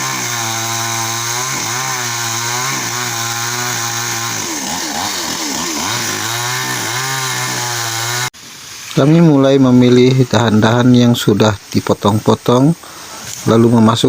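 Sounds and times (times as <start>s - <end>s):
chainsaw cutting branches: 0.0s - 8.3s.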